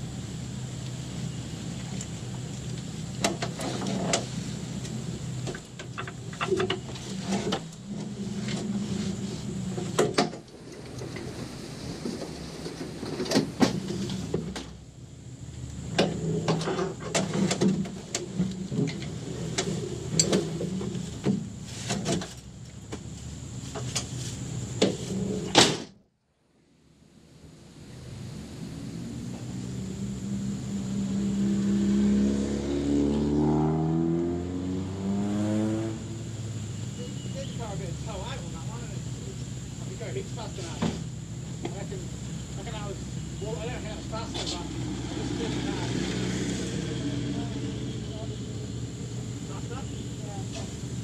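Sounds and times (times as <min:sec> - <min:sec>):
car engine idling: 0:00.0 - 0:17.2, 0:36.0 - 0:46.2, 0:47.0 - 0:51.0.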